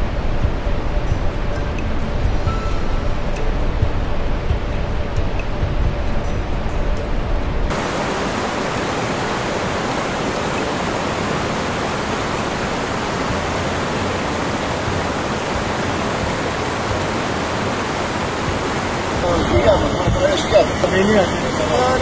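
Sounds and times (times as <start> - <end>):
floodwater rushing: 7.7 - 22.0.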